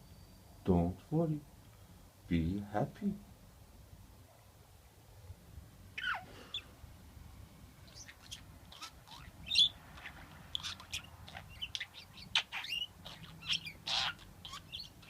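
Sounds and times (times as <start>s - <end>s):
budgerigar chirping: 6.0s - 6.7s, 7.8s - 15.0s.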